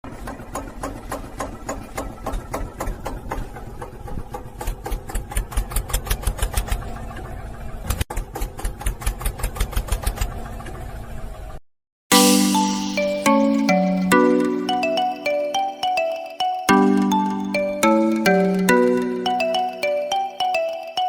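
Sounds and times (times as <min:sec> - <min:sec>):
small tractor engine chugging: 0:00.1 - 0:07.7.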